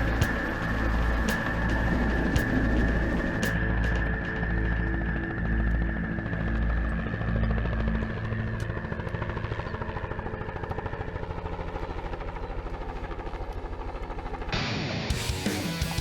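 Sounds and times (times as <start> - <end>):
background music: 0.0 - 11.0, 14.6 - 16.0
helicopter rotor beating: 0.0 - 16.0.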